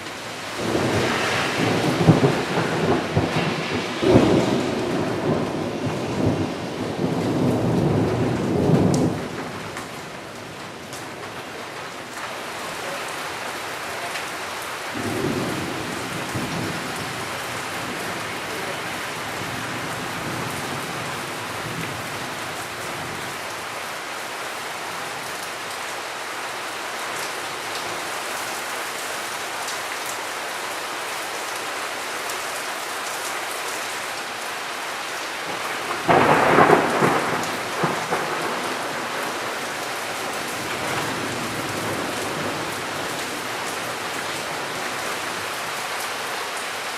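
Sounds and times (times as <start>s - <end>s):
heavy rain: 0.0s - 46.9s
loud close thunderclap: 0.6s - 9.9s, 14.9s - 22.1s, 35.5s - 43.2s
thunder rumbling: 0.6s - 11.5s, 14.9s - 23.3s, 35.4s - 45.4s.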